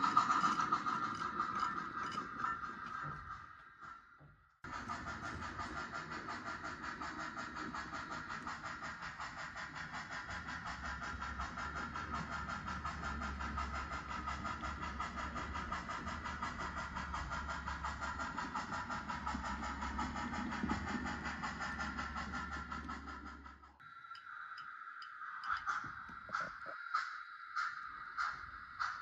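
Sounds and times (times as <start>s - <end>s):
model locomotive engine pulsing: 0.0s - 29.0s.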